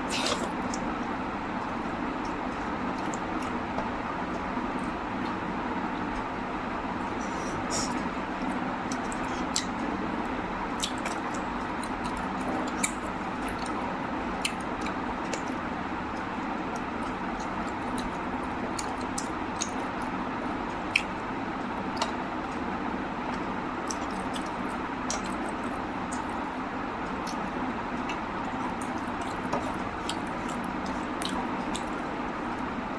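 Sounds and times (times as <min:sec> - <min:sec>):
wet chewing: 0:27.2 - 0:32.1.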